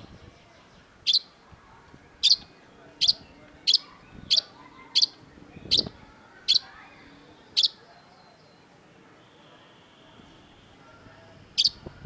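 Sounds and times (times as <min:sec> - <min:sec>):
bird giving sharp high calls: 0:02.2 - 0:07.8, 0:11.6 - 0:11.9.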